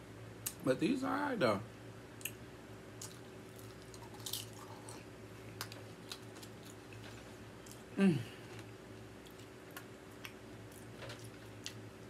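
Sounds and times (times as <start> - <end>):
steady low hum: 0.0 - 12.0
faint chewing: 3.0 - 12.0.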